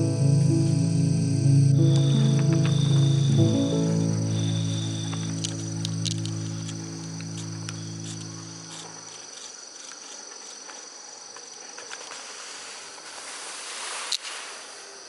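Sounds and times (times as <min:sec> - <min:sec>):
background music: 0:00.0 - 0:09.0
crickets and insects chorus: 0:00.0 - 0:15.0.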